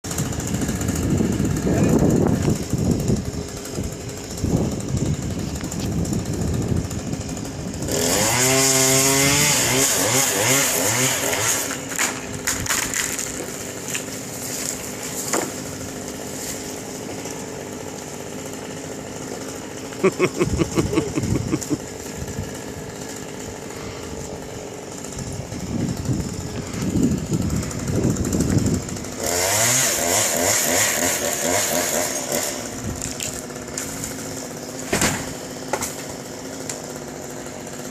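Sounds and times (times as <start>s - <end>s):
chainsaw running and revving: 0.0s - 37.9s.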